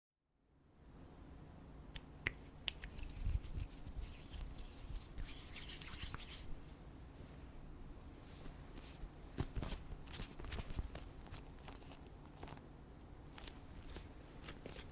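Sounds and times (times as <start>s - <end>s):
crickets trilling: 0.6s - 14.9s
scratching and brushing noises: 2.8s - 7.5s, 8.1s - 14.9s.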